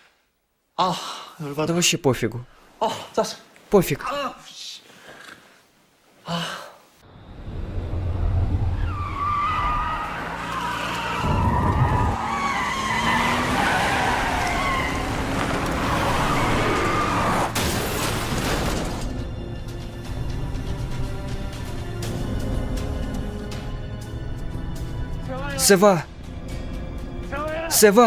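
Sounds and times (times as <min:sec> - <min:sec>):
heavy rumble: 0:07.1 - 0:09.8
car speeding: 0:07.2 - 0:17.6
tyres skidding and squealing: 0:07.2 - 0:19.1
dramatic film music: 0:15.4 - 0:28.0.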